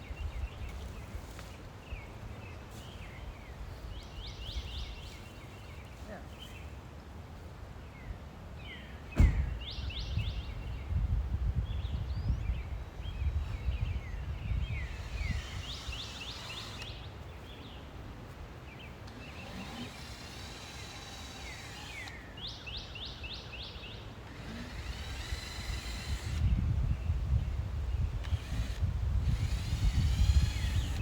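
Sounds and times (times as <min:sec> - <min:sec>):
songbirds singing: 0:00.0 - 0:06.9, 0:07.8 - 0:31.0
wind rumble on microphone: 0:09.2 - 0:16.2, 0:24.6 - 0:31.0.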